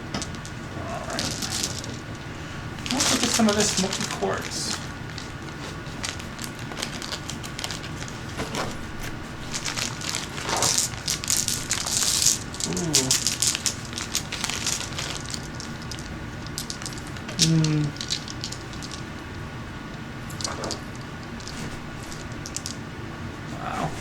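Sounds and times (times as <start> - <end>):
stones clicking: 0.1 - 2.2, 9.5 - 19.1, 20.3 - 22.8
plastic bag crinkling: 0.2 - 19.1, 20.3 - 22.8.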